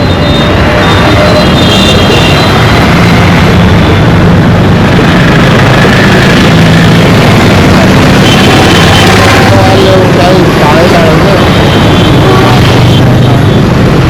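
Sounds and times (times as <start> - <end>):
faint car horns: 0.0 - 3.0, 8.2 - 10.4, 11.0 - 13.4
traffic engines rumbling: 0.0 - 14.0.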